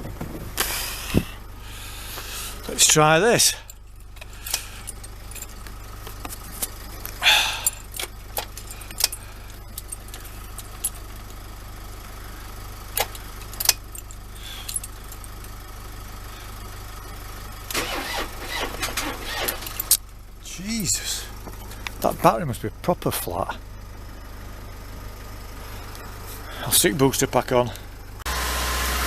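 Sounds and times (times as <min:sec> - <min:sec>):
engine cranking without firing: 0:00.0 - 0:11.4, 0:12.3 - 0:15.7, 0:17.0 - 0:23.2.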